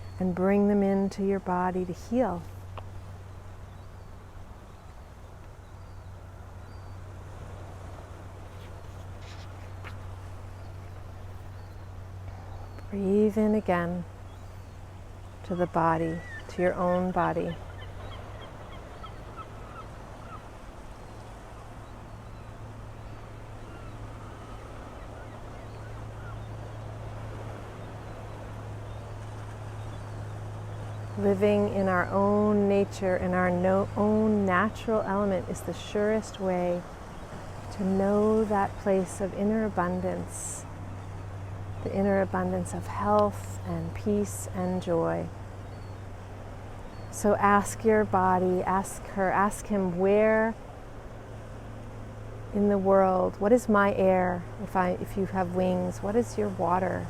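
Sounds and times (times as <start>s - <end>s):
constant low rumble: 0.0s - 57.0s
wind: 0.0s - 57.0s
faint bird calls: 14.2s - 31.3s.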